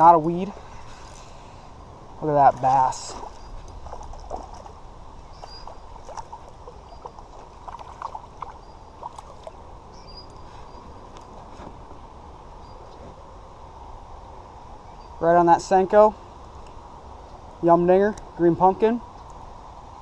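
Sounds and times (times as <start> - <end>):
light water sounds: 0.0 - 11.9.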